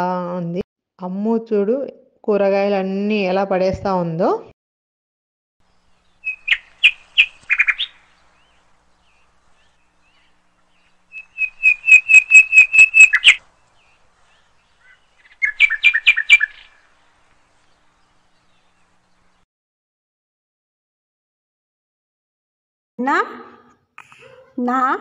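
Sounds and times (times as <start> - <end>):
bird calling rapid high notes: 6.2 - 8.1, 11.1 - 13.4, 14.4 - 16.8.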